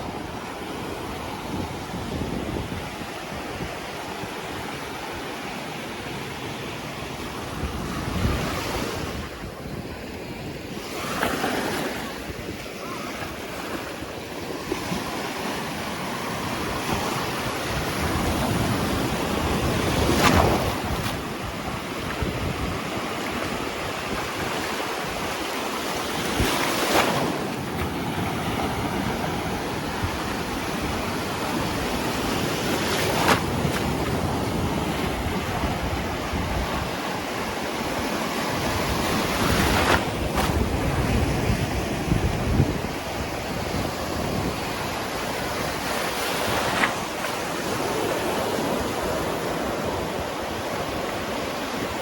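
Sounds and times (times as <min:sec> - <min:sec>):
wind buffeting microphone: 0:00.0 - 0:05.2, 0:07.0 - 0:52.0
waves breaking on beach: 0:00.0 - 0:52.0.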